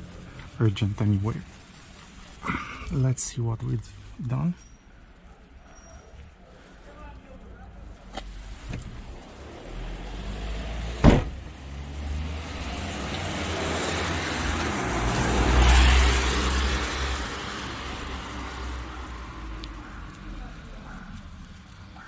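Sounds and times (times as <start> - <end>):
car passing by: 8.2 - 22.0
sharp knock: 11.0 - 11.4.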